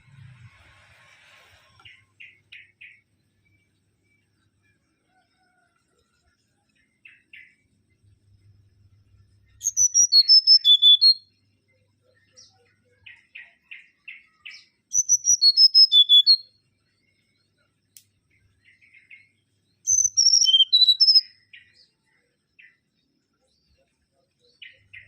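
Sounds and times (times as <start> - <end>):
bird whistled song phrases: 9.6 - 11.3, 13.1 - 16.6, 19.8 - 21.8.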